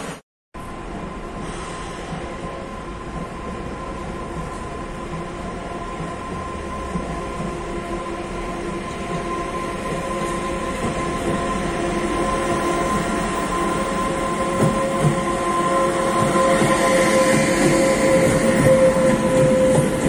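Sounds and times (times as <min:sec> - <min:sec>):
electric locomotive passing: 0:00.6 - 0:20.0
steady whining tone: 0:04.3 - 0:20.0.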